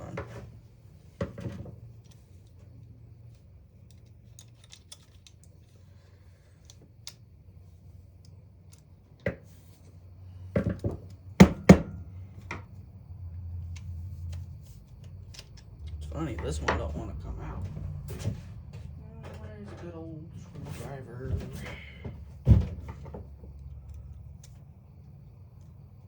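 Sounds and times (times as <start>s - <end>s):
faint low hum: 0.0s - 26.0s
pliers clicking on metal parts: 3.3s - 5.8s, 13.7s - 16.0s.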